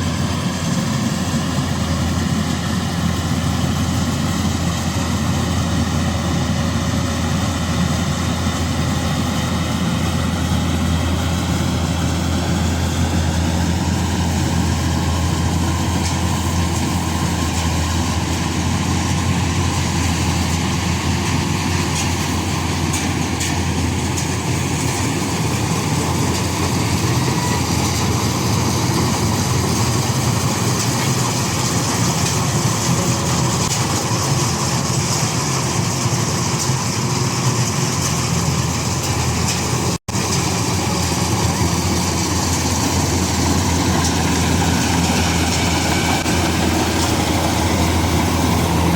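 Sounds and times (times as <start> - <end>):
combine harvester engine drone: 0.0 - 48.9.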